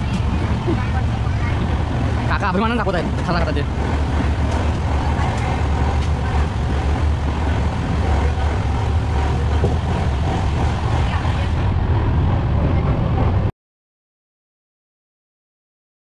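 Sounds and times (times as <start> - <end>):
wheels hissing on rails: 0.0 - 12.8
train running low rumble: 0.0 - 13.5.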